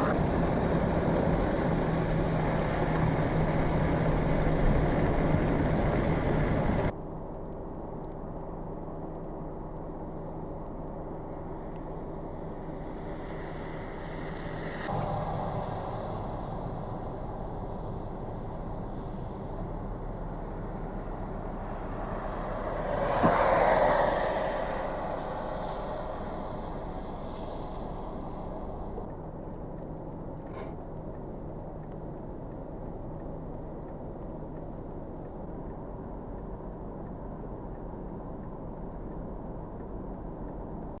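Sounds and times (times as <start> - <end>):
road traffic noise: 0.0 - 7.0, 7.6 - 41.0
vehicle passing by: 13.4 - 29.1.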